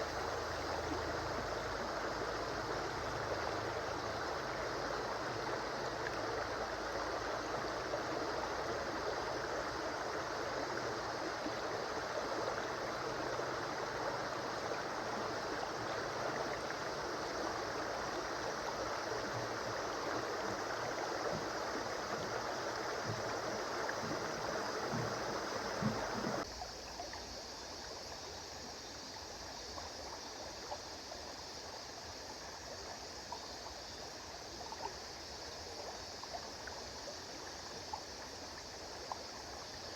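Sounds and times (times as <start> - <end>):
water gurgling: 0.0 - 39.9
river water rushing: 10.3 - 26.4.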